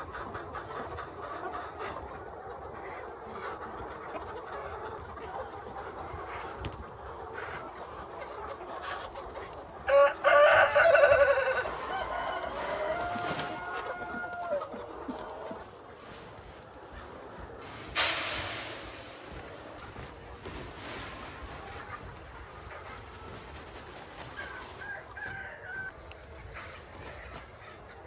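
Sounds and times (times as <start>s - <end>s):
hens clucking faintly: 0.0s - 28.0s
rooster crowing: 9.9s - 14.7s, 24.8s - 25.9s.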